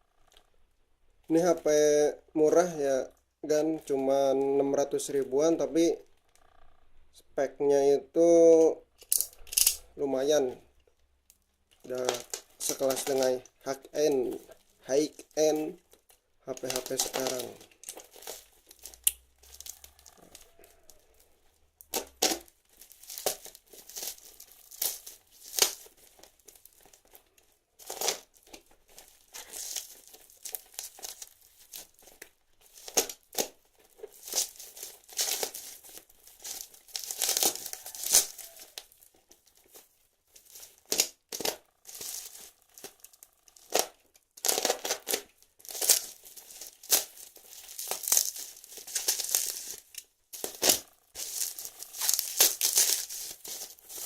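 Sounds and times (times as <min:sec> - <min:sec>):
packaging ripping and crinkling: 0:11.8 - 0:54.0.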